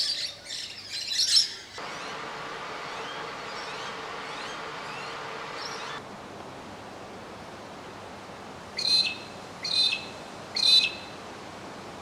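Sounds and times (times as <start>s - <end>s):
faint birdsong: 0.0s - 6.0s
harsh bird calls: 1.1s - 6.0s
hiss: 1.8s - 6.0s.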